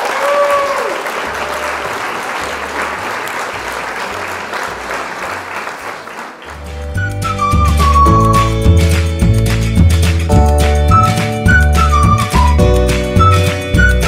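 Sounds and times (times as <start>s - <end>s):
applause: 0.0s - 13.9s
music with stepping bass line: 6.6s - 14.0s.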